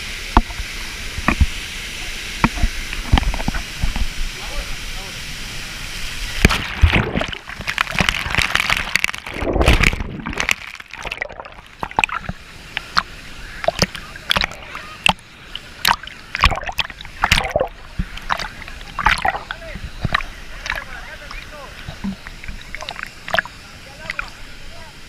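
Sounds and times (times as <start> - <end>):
waterfall rushing: 0.8 - 25.0
water splashing and sloshing: 2.4 - 4.4, 5.8 - 24.5.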